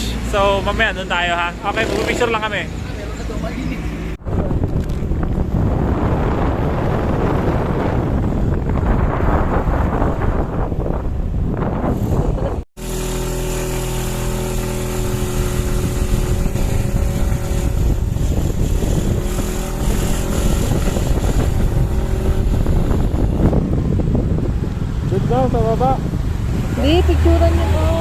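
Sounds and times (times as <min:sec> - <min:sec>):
motorcycle engine running: 0:12.1 - 0:28.0.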